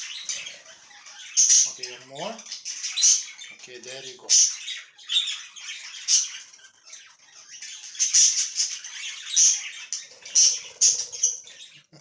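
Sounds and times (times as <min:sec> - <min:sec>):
budgerigars chattering and squawking: 0:00.0 - 0:12.0.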